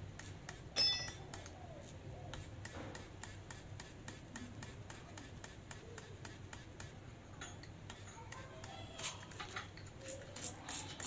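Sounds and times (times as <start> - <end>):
metal part clinking: 0.8 - 1.2.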